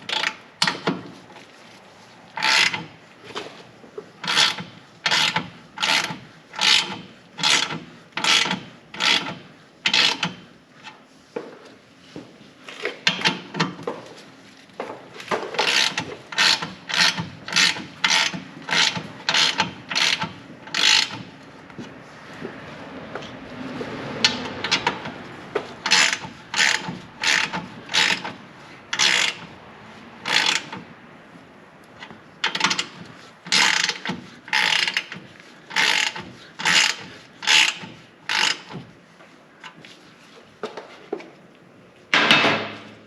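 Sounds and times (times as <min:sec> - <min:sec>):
ratchet wrench clicking strokes: 0:02.4 - 0:02.9, 0:04.2 - 0:10.4, 0:15.6 - 0:21.3, 0:25.8 - 0:29.5, 0:30.2 - 0:30.8, 0:32.4 - 0:38.8.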